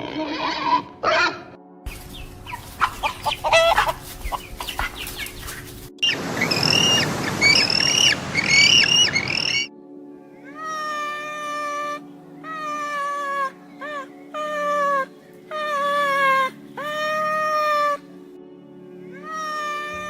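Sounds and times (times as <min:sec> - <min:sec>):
barnyard background noise: 0:00.0 - 0:06.3
repeated poultry calls: 0:00.0 - 0:09.7, 0:10.6 - 0:18.0
poultry clucking and squawking: 0:01.9 - 0:09.6.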